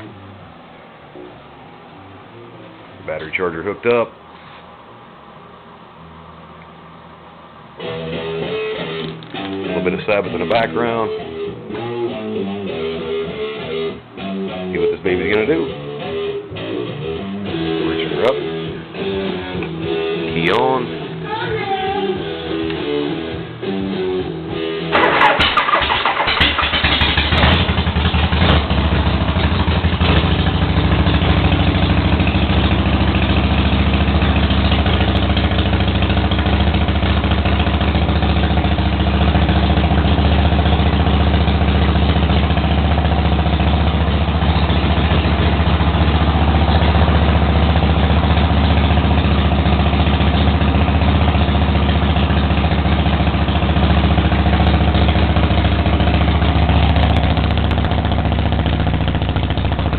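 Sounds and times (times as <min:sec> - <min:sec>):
motorcycle engine idling: 0:25.0 - 0:59.9.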